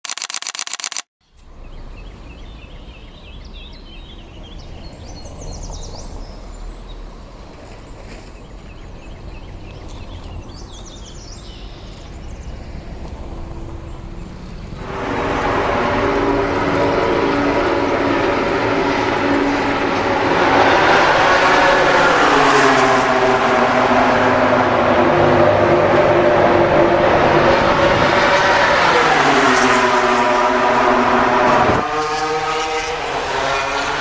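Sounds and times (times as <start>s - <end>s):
birds chirping: 1.2s - 31.8s
loud engine droning: 11.4s - 34.0s.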